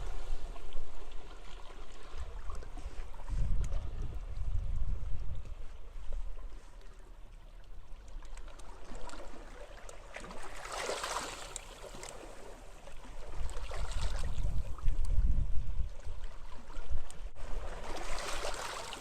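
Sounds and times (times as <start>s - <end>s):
wind buffeting microphone: 2.1s - 6.6s, 13.6s - 17.7s
sea waves washing onto beach: 17.5s - 19.0s.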